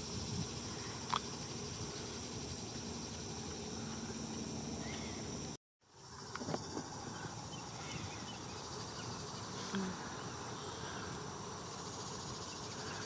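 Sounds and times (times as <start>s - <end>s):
high-pitched insect drone: 0.0s - 13.0s
bird chirp: 4.8s - 5.4s.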